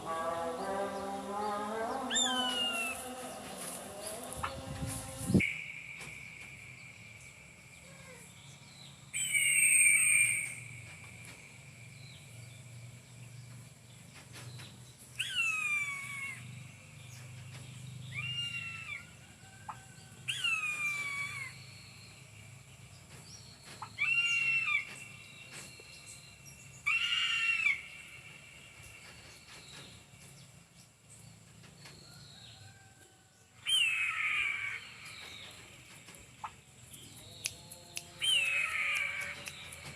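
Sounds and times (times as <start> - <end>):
eagle calling: 0.0 - 8.3, 9.1 - 10.8, 15.2 - 16.4, 20.3 - 21.6, 23.8 - 25.2, 26.8 - 28.5, 33.6 - 35.2, 36.4 - 39.9.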